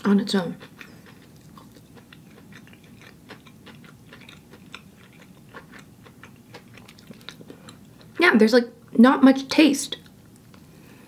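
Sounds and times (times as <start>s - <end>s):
person chewing: 0.0s - 8.2s.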